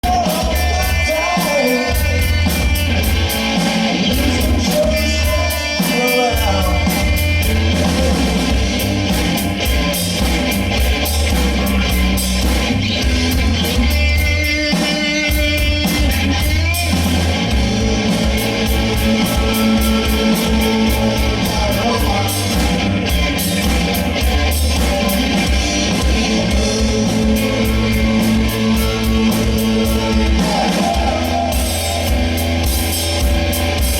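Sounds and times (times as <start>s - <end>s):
person singing: 0.0s - 8.2s, 17.8s - 32.4s
live rock band playing: 0.0s - 33.9s.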